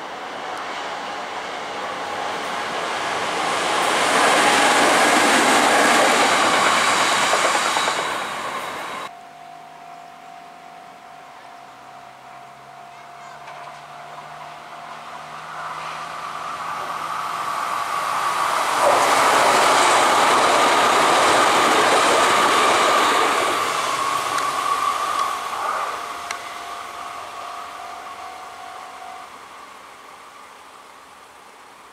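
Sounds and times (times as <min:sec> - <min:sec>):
wheel and track noise: 0:00.0 - 0:09.1, 0:14.9 - 0:26.5
electric train passing: 0:00.0 - 0:31.9
steady train whine: 0:00.0 - 0:31.9.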